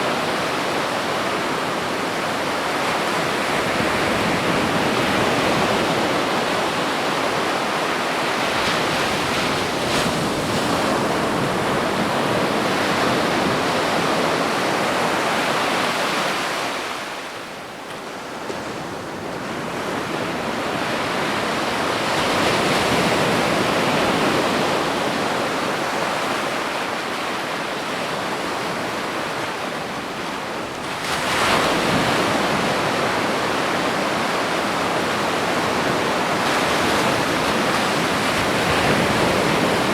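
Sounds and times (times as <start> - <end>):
ocean surf breaking on beach: 0.0 - 17.6, 18.2 - 39.9.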